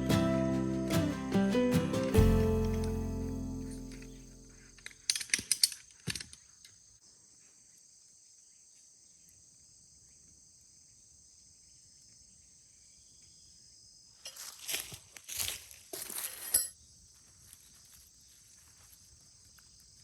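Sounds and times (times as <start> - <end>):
crickets chirring: 2.3 - 20.0.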